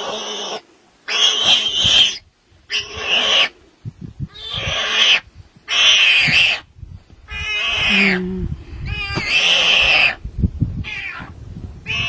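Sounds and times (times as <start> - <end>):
animal harsh cries: 0.0 - 3.5, 4.3 - 6.7, 7.3 - 10.2, 10.8 - 11.3.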